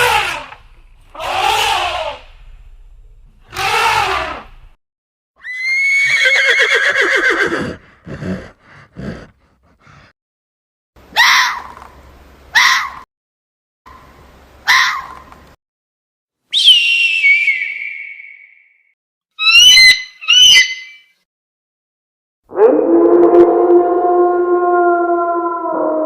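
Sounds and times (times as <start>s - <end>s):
horse whinnying: 1.2s - 2.3s, 3.5s - 4.6s, 5.4s - 9.3s.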